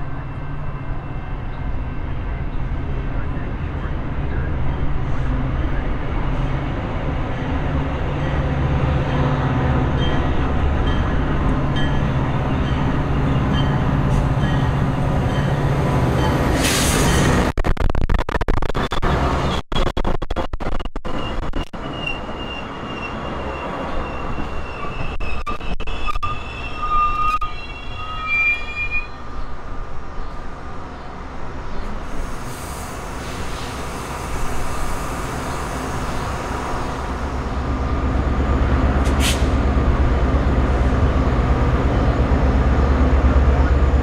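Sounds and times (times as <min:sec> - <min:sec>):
high wheel squeals: 0:21.2 - 0:29.5
train cars rolling past: 0:21.8 - 0:44.0.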